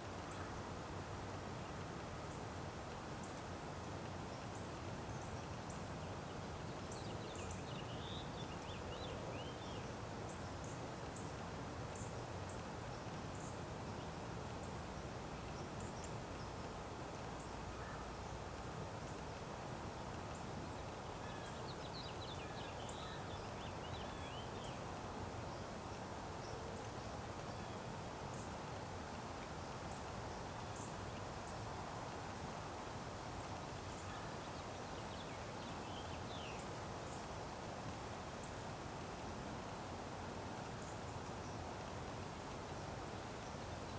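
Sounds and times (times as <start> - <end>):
small birds chirping: 20.2 - 29.3, 33.4 - 37.4.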